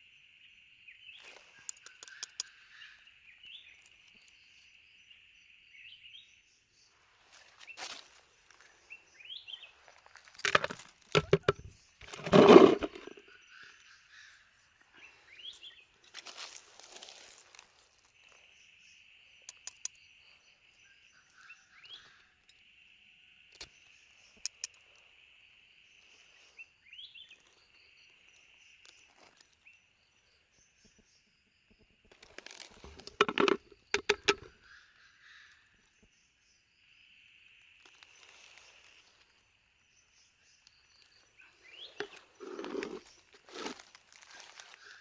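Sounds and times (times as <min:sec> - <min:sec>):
rustling and handling noise: 0:09.7 - 0:13.2, 0:41.9 - 0:45.0
night insects trilling: 0:34.5 - 0:45.0.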